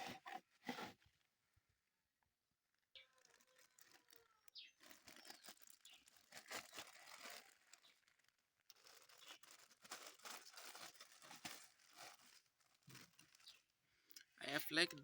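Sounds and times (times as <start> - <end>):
packaging rustling and crinkling: 3.0 - 13.7.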